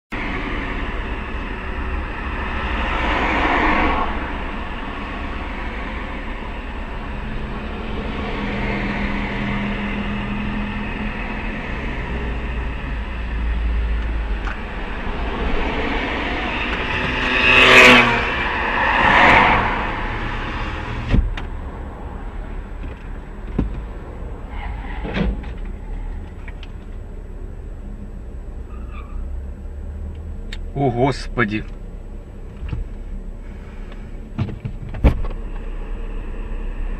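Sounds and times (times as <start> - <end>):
car road and engine noise: 0.0 - 36.9
vehicles whooshing past: 0.1 - 27.9.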